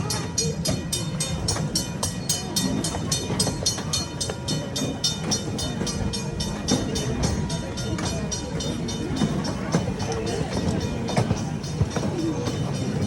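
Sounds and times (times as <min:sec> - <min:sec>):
small train rumbling: 0:00.0 - 0:13.0.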